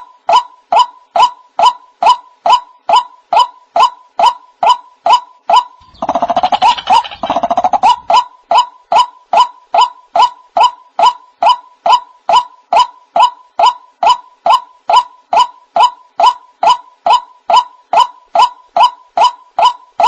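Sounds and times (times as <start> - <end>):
bird calling repeated notes: 5.6 - 8.7
bird stuttering chatter: 5.8 - 8.2.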